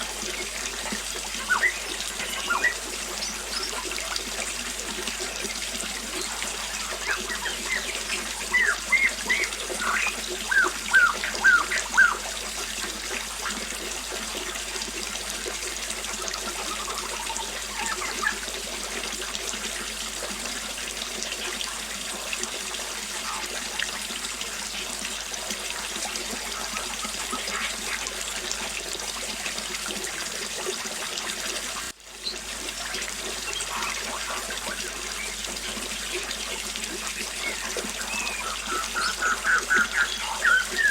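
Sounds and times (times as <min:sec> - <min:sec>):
small waterfall splashing: 0:00.0 - 0:40.9
bird chirping: 0:01.4 - 0:03.8, 0:06.8 - 0:12.2, 0:37.4 - 0:40.9.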